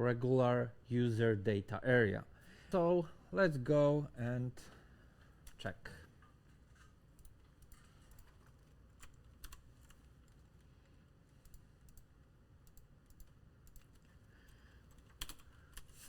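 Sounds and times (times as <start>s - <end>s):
computer keyboard keystrokes: 7.2s - 10.5s, 11.4s - 16.0s.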